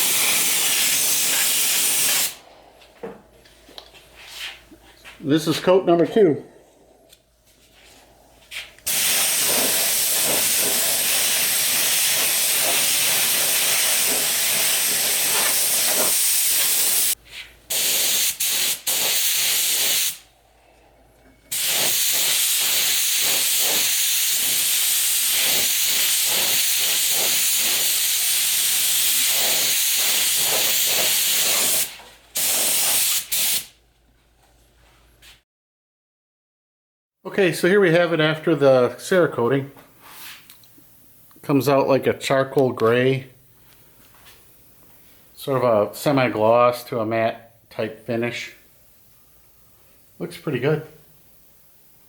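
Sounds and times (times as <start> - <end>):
spray gun hissing: 0.0 - 2.4, 8.9 - 20.2, 21.5 - 33.7.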